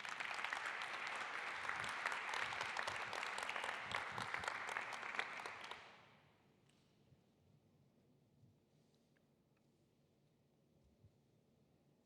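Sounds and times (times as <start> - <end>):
audience applause: 0.0 - 5.8.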